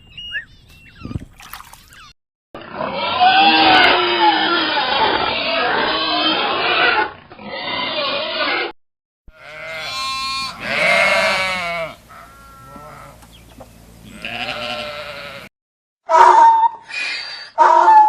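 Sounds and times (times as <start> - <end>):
rough noisy animal sound: 2.6 - 8.7, 9.3 - 15.5
goat bleating: 2.9 - 8.7, 9.3 - 13.2, 14.0 - 15.5.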